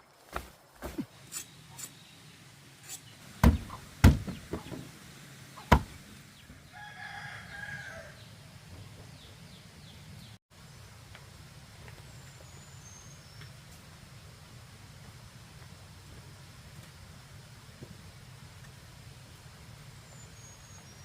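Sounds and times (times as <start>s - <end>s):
sharp knocks: 3.4s - 4.9s, 5.6s - 6.0s
rooster crowing: 6.6s - 8.4s.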